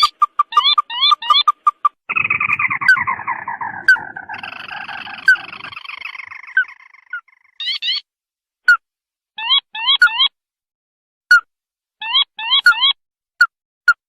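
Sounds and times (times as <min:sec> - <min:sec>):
bird chattering call: 0:00.0 - 0:08.0
sharp clicking bird notes: 0:00.0 - 0:08.0
quick rising bird notes: 0:02.1 - 0:07.5.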